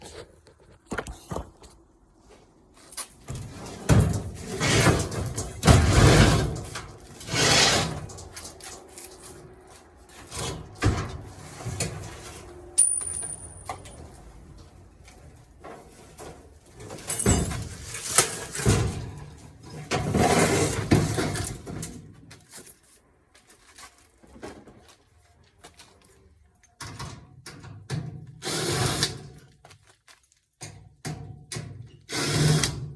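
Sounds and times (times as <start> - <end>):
metal clanks and knocks: 3.2 - 9.0, 10.3 - 14.4, 15.6 - 22.0
metal scraping: 3.3 - 14.3.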